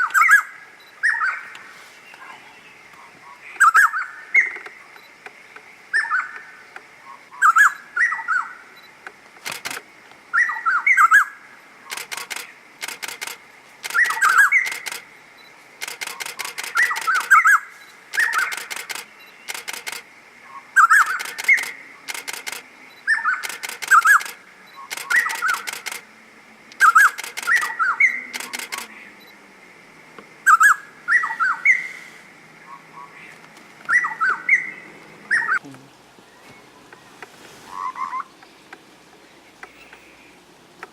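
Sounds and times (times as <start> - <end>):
sharp rapid clicks: 9.4 - 9.9, 11.9 - 15.0, 15.8 - 17.4, 18.1 - 20.1, 21.0 - 22.6, 23.4 - 26.0, 26.8 - 28.9
songbird whistling: 13.9 - 14.9, 33.9 - 35.6.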